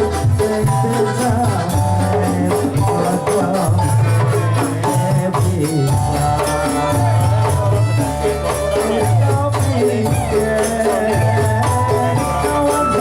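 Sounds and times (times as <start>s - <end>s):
hand percussion beat: 0.0s - 13.0s
held melodic line: 0.0s - 13.0s
tambourine jingles and shakers: 0.0s - 13.0s.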